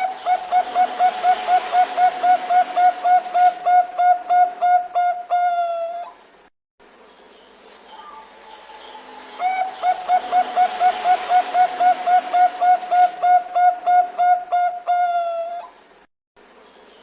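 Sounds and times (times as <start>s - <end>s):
dove cooing: 0.0s - 6.2s, 8.9s - 15.8s
background hiss: 0.0s - 17.0s.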